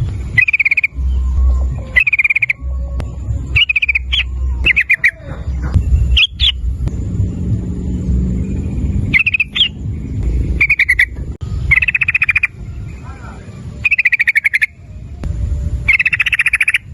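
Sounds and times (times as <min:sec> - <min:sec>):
low rumble: 0:00.0 - 0:16.9
bird chattering call: 0:00.4 - 0:02.6, 0:03.5 - 0:06.6, 0:09.1 - 0:09.8, 0:10.6 - 0:15.0, 0:15.9 - 0:16.9.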